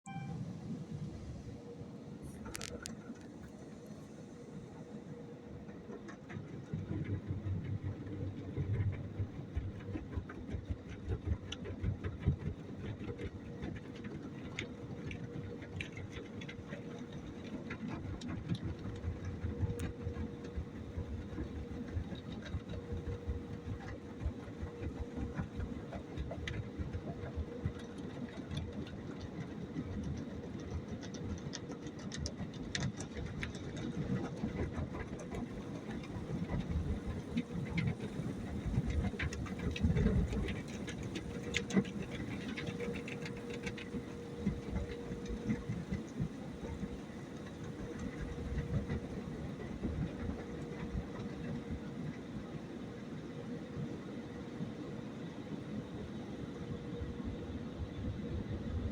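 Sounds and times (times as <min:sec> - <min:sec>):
small clicks and spatters: 0:02.3 - 0:03.6, 0:05.7 - 0:52.3.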